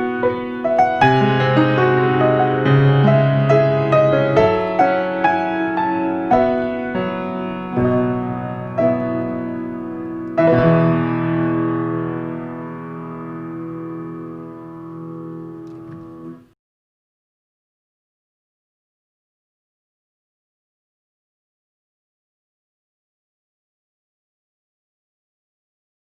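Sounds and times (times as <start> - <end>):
solo piano playing slowly: 0.0 - 16.6.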